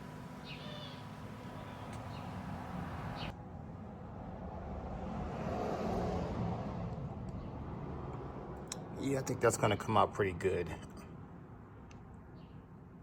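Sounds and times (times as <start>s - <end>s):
low background rumble: 0.0s - 3.4s.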